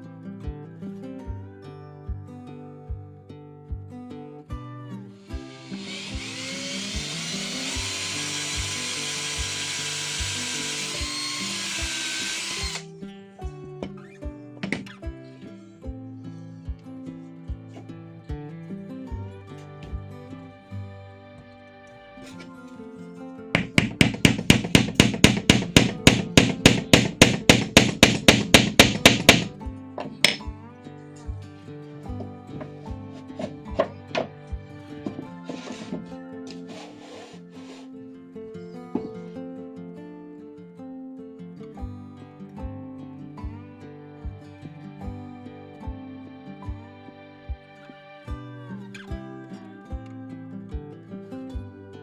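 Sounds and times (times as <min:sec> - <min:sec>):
background music: 0:00.0 - 0:52.0
background music with beat: 0:02.1 - 0:03.1, 0:03.7 - 0:04.6, 0:31.3 - 0:36.8, 0:44.2 - 0:48.5
electric power tool running: 0:05.3 - 0:12.8, 0:35.1 - 0:37.8
hammer striking wood: 0:14.6 - 0:14.9, 0:23.6 - 0:30.4, 0:32.2 - 0:34.3.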